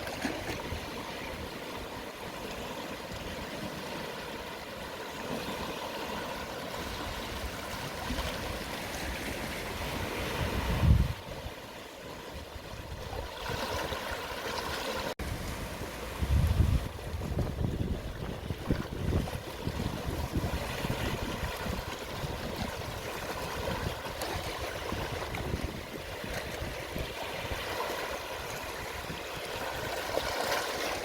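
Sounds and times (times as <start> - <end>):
sea waves washing on shore: 0.0 - 31.0
wind gust on microphone: 6.8 - 11.6, 15.2 - 30.4.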